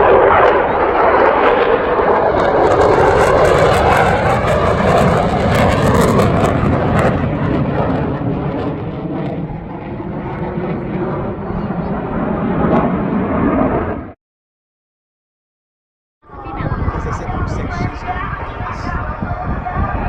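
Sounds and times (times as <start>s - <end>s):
military jets passing overhead: 0.0s - 14.2s.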